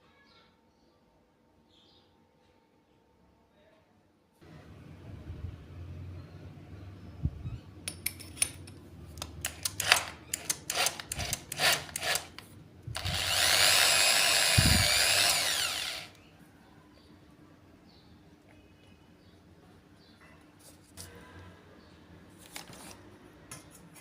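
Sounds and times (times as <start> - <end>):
small power tool running: 9.8 - 16.2.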